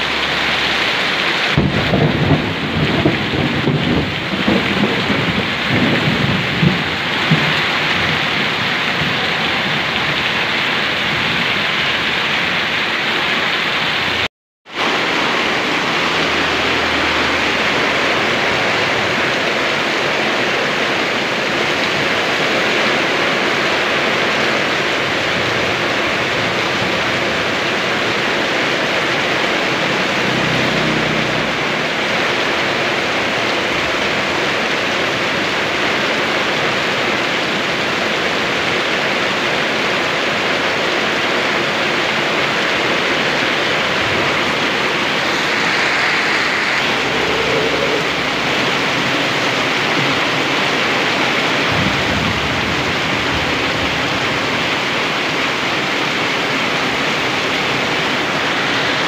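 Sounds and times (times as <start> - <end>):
steady rain: 0.0 - 59.0
low rumbles: 43.8 - 50.6.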